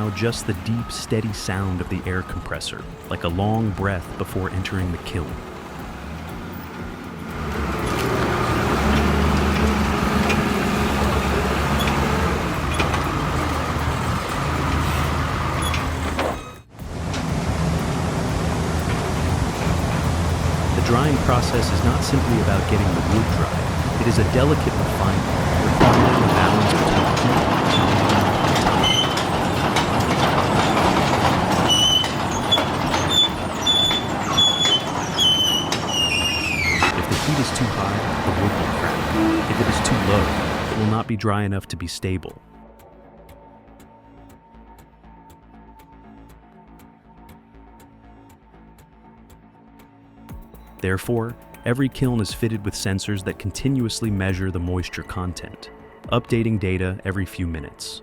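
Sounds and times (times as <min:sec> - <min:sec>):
sawmill machinery din: 0:00.0 - 0:41.2, 0:50.8 - 0:54.9
air compressor droning: 0:07.4 - 0:41.0
high-pitched metallic squeals: 0:07.5 - 0:40.9.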